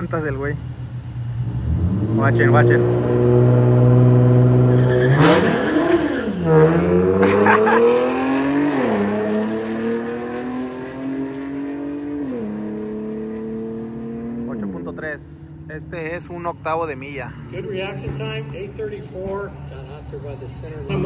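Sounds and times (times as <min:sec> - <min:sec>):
car engine revving through gears: 0:01.4 - 0:15.0.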